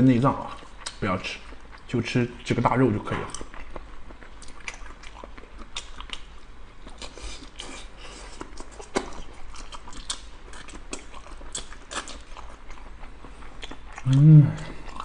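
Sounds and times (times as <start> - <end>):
person chewing food: 0.4 - 1.9, 3.2 - 15.0
mouth clicks and smacks: 0.8 - 1.0.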